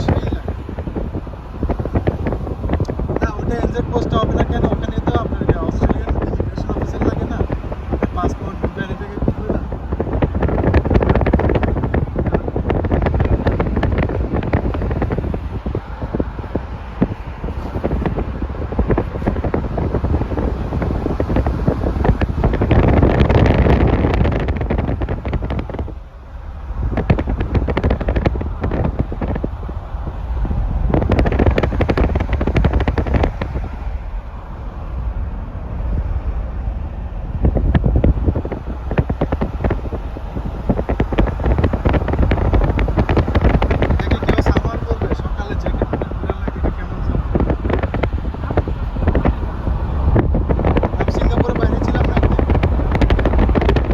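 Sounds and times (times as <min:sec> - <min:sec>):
wind buffeting microphone: 0:00.0 - 0:53.9.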